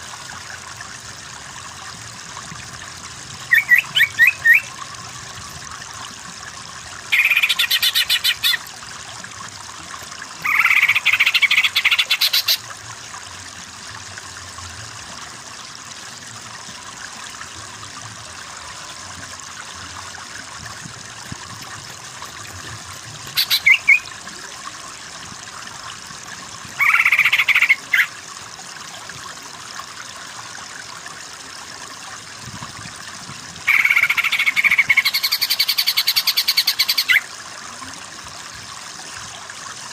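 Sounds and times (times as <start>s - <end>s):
bird chattering trills: 3.5s - 4.7s, 7.1s - 8.6s, 10.4s - 12.6s, 23.4s - 24.1s, 26.8s - 28.1s, 33.7s - 37.2s.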